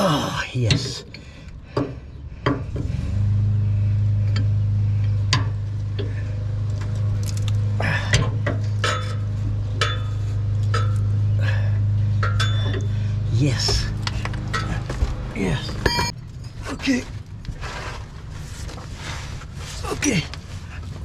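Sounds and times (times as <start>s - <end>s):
steady low hum: 0.0s - 21.0s
light metallic clinks and knocks: 6.8s - 11.2s, 12.1s - 15.0s, 15.6s - 16.8s.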